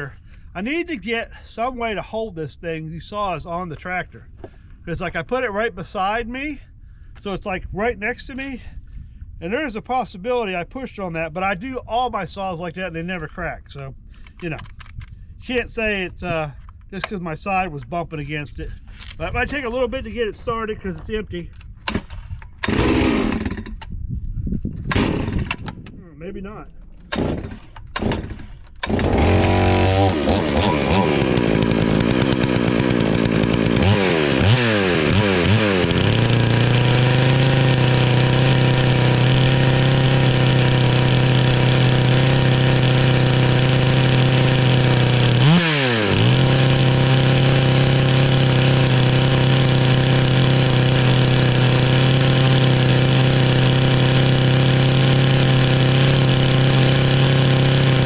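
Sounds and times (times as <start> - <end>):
chainsaw revving: 21.9 - 23.7, 27.1 - 58.0.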